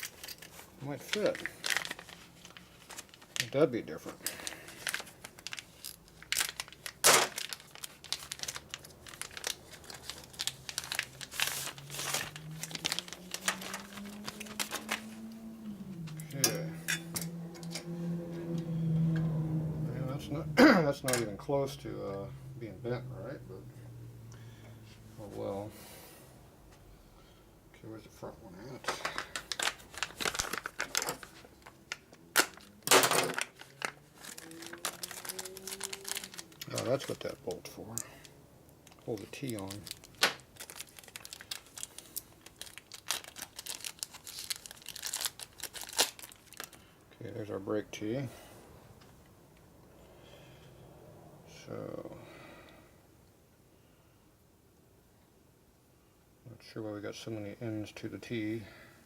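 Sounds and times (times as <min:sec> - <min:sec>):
packaging crinkling and tearing: 0:00.0 - 0:15.4, 0:28.6 - 0:46.9.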